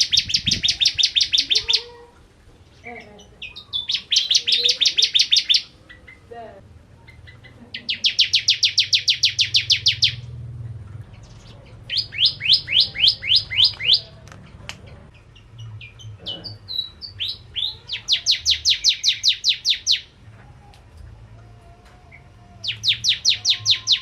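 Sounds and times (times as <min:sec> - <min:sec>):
bird singing high trill: 0:00.0 - 0:01.8, 0:03.4 - 0:06.3, 0:07.1 - 0:10.4, 0:11.2 - 0:14.1, 0:15.8 - 0:20.1, 0:22.6 - 0:24.0
bird chips: 0:11.1 - 0:15.6.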